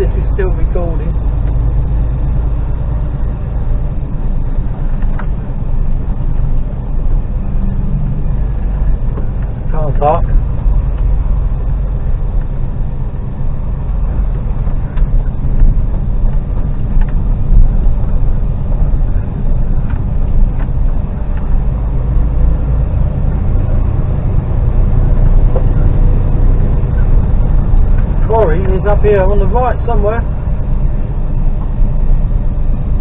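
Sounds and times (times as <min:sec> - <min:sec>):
lorry engine drone: 0:00.0 - 0:33.0.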